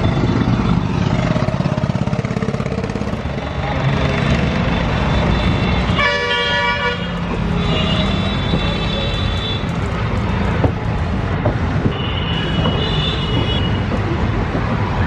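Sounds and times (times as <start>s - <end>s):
train rumble on board: 0.0s - 15.0s
train horn: 6.0s - 7.0s
sharp knocks: 10.5s - 15.0s.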